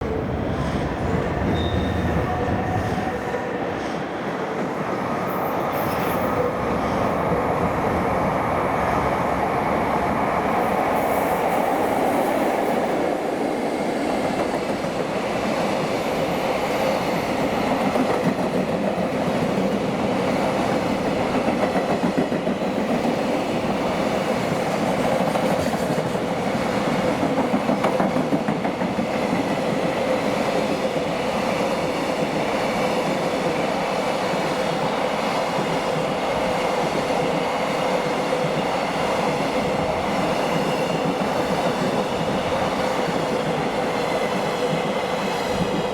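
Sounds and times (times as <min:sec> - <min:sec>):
freight train rolling past: 0:00.0 - 0:45.9.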